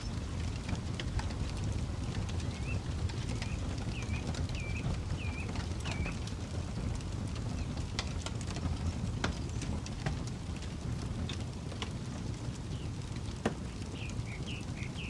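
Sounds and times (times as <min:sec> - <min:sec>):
campfire crackling and popping: 0:00.0 - 0:15.0
bird chirping: 0:03.4 - 0:06.2, 0:13.9 - 0:15.0.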